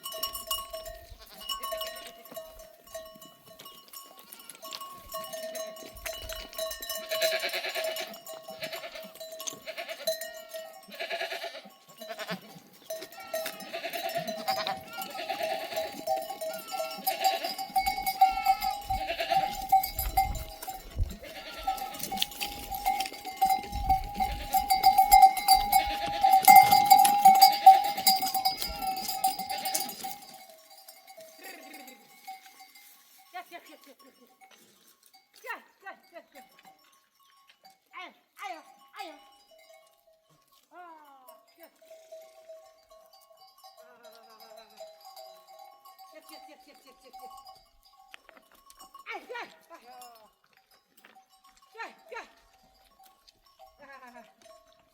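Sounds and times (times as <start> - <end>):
sheep and goats bleating: 0.0 - 36.6, 40.6 - 47.6
animal bells ringing: 0.0 - 54.9.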